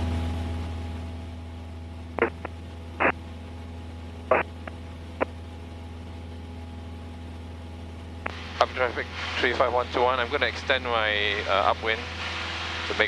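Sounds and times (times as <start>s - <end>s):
aircraft engine hum over intercom: 0.0s - 13.0s
radio static clicks: 2.2s - 3.2s, 4.3s - 5.4s.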